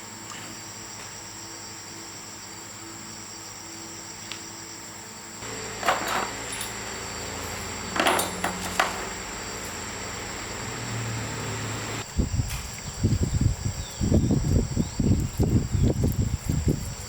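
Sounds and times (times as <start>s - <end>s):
metallic knocks and clinks: 5.4s - 9.8s.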